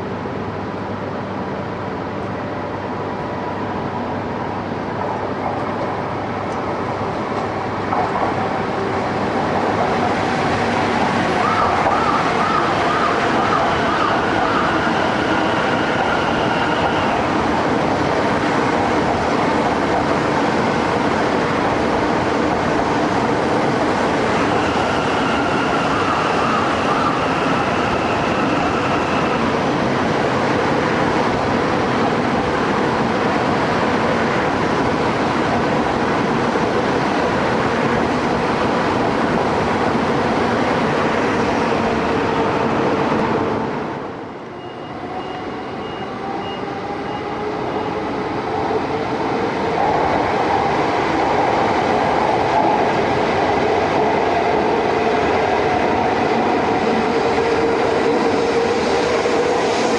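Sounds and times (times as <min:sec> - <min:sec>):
train wheels rumbling: 0:45.0 - 0:59.9.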